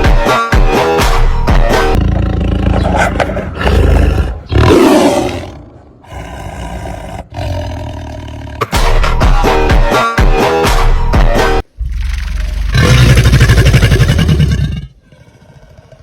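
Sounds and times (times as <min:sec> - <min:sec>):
music with a beat: 0:00.0 - 0:02.0, 0:08.7 - 0:11.6
wild animal roars and screams: 0:02.0 - 0:08.6.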